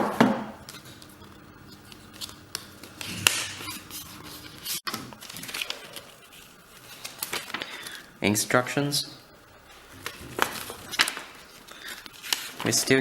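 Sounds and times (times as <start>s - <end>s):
paper rustling: 1.7s - 8.1s, 9.7s - 13.0s.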